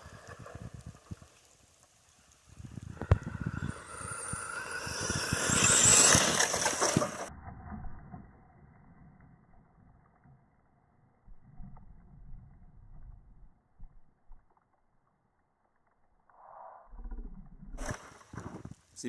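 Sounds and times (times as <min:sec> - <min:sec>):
tyre and ground noise: 0:00.0 - 0:07.3
electric motor whine: 0:02.9 - 0:07.3.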